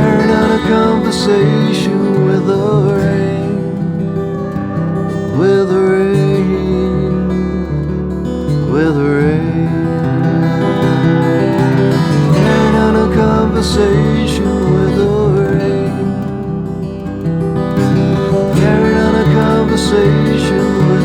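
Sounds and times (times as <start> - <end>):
acoustic guitar strummed chords: 0.0 - 21.0.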